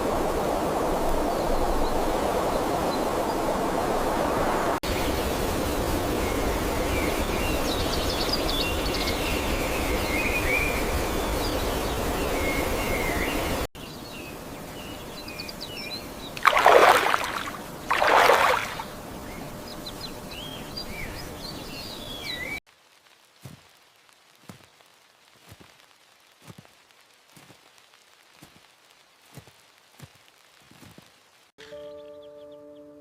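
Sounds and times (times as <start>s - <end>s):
steady rushing noise: 0.0s - 7.6s
small birds chirping: 6.3s - 22.6s.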